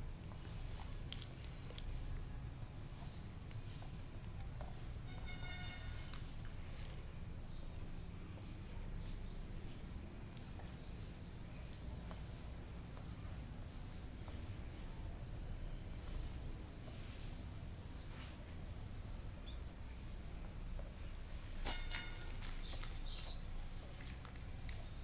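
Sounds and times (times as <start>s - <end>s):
high-pitched insect trill: 0.5s - 17.2s, 17.8s - 25.0s
bird chirps and calls: 22.6s - 23.5s.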